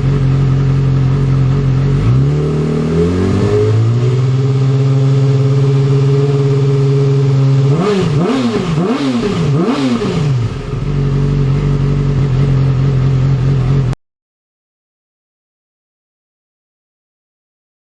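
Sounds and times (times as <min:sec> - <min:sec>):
motorcycle engine idling: 0:00.0 - 0:14.0
motorcycle throttle blips: 0:00.0 - 0:14.0.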